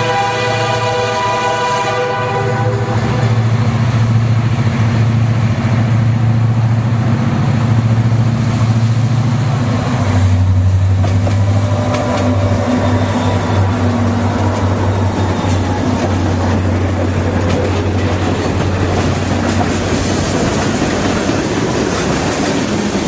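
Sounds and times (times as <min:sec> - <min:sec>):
locomotive horn blast: 0:00.0 - 0:03.7, 0:11.4 - 0:16.5
diesel locomotive engine rumble: 0:00.0 - 0:23.0.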